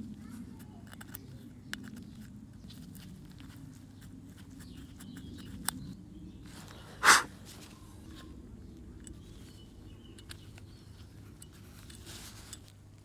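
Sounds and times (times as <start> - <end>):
small parts clicking and tapping: 0.0 - 6.0, 9.0 - 13.0
burst of hissing noise: 7.0 - 7.3.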